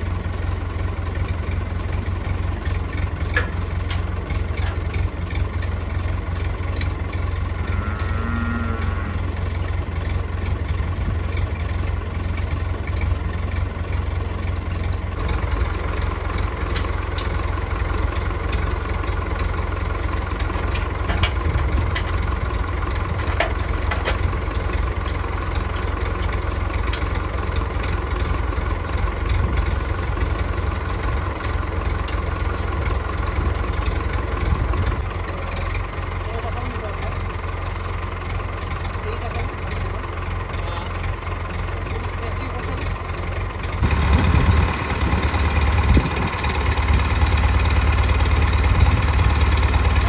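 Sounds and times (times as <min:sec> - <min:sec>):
tractor engine running: 0:00.0 - 0:50.0.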